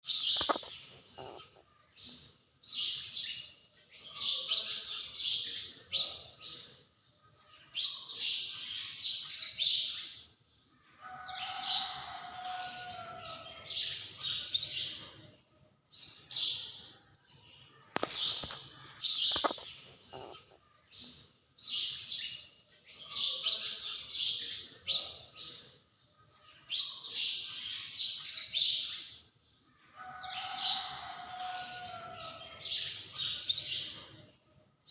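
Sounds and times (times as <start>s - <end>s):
high-pitched animal chirping: 0.3s - 1.6s.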